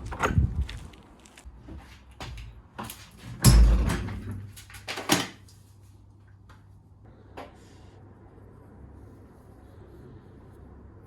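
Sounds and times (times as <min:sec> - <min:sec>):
heavy door thud: 0:03.4 - 0:04.4.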